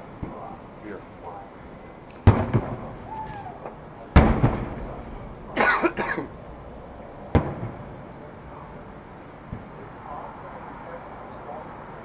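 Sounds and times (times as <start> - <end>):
fireworks bursting with loud bangs: 2.2 - 8.4
person coughing: 5.6 - 6.3.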